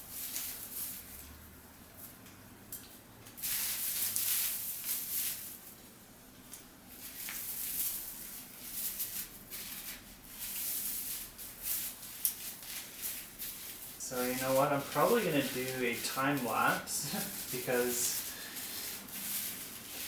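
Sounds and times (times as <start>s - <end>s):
artificial tree branches rustling: 3.4s - 5.8s, 6.5s - 20.0s.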